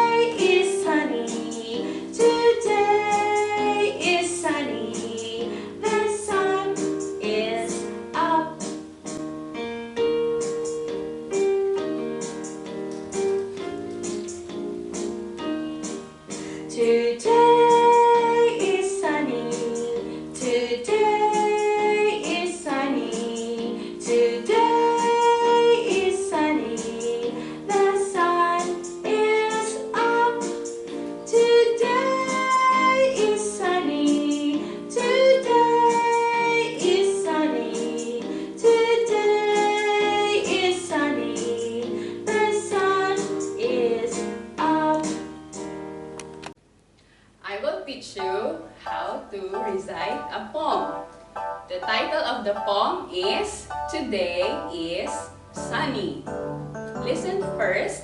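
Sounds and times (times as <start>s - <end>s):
woman and children singing: 0.0s - 8.7s, 16.7s - 30.6s, 31.2s - 45.3s
keyboard accompaniment: 0.0s - 46.7s, 48.1s - 58.0s.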